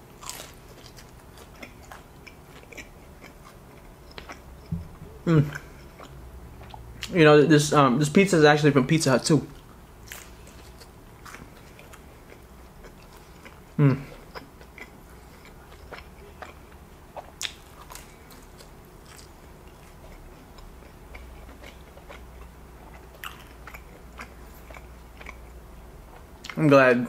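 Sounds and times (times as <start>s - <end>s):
person humming briefly: 4.9s - 5.6s, 13.8s - 14.1s.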